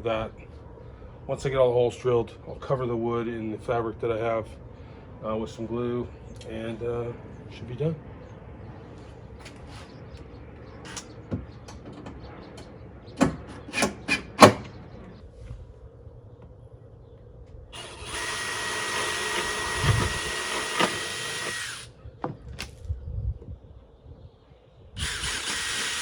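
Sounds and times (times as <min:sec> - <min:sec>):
power drill whining: 0:17.8 - 0:21.9, 0:25.0 - 0:26.0.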